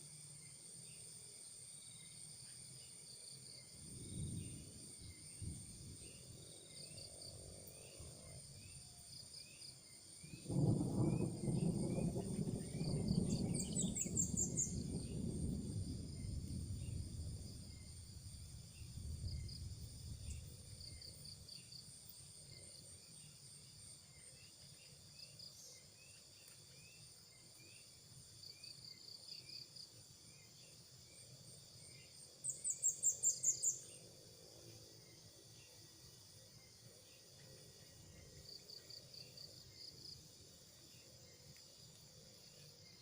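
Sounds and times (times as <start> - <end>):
insects trilling: 0.0 - 43.0.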